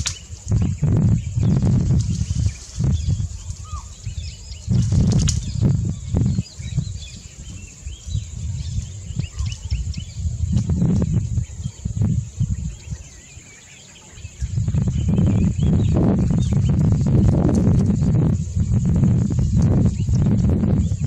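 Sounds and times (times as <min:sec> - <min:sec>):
high insect drone: 0:00.0 - 0:21.0
small birds chirping: 0:00.0 - 0:21.0
low rumbling noise: 0:14.1 - 0:21.0.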